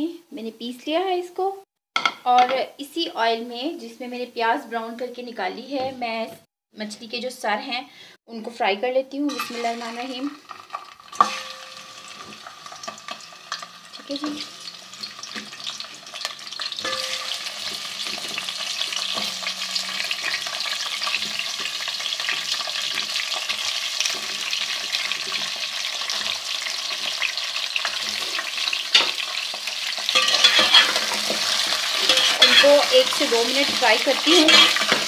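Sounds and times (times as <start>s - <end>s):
fish frying in hot fat: 9.4s - 35.0s
spoon knocking in a pan: 10.5s - 27.2s, 28.9s - 29.3s, 30.0s - 35.0s.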